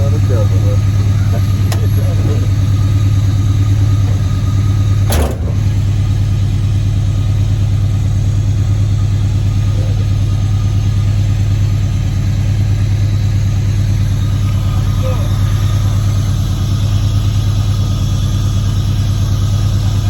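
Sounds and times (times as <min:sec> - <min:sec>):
car engine idling: 0:00.0 - 0:20.0
brief thump: 0:05.0 - 0:05.7.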